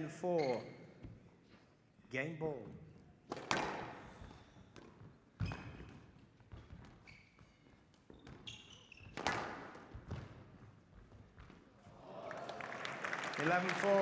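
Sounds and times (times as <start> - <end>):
court shoes squeaking on floor: 0.0 - 1.8, 3.0 - 11.8
squash ball hitting rackets and walls: 3.3 - 6.9, 8.0 - 10.7.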